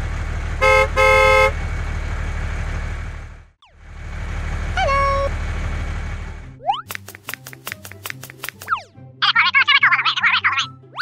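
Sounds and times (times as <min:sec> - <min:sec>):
tractor engine throbbing: 0:00.0 - 0:08.3
horn toot: 0:00.6 - 0:01.6.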